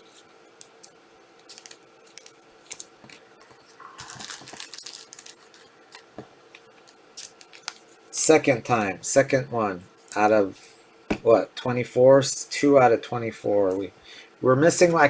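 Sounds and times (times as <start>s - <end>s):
wrapper crinkling: 1.5s - 3.0s, 3.6s - 6.2s.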